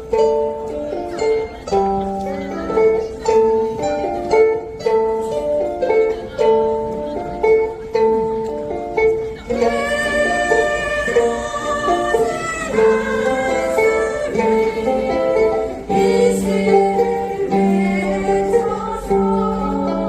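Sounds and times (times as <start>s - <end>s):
ukulele ensemble playing: 0.0s - 20.0s
group singing: 9.5s - 20.0s.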